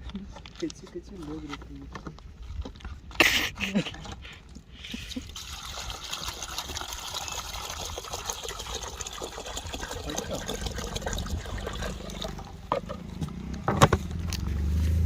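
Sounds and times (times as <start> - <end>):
water pouring and splashing: 4.9 - 13.0.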